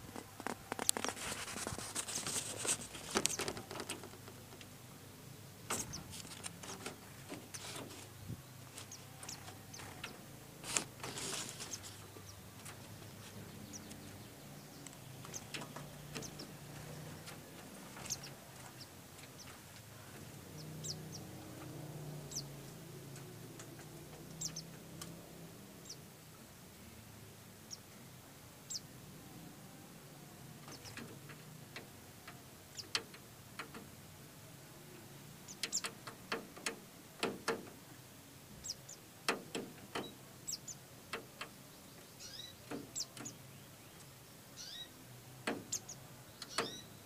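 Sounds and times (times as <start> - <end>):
brief rustle: 0.0 - 4.7, 5.7 - 14.0
high bird chirps: 42.0 - 43.4, 44.6 - 45.0, 45.7 - 47.0.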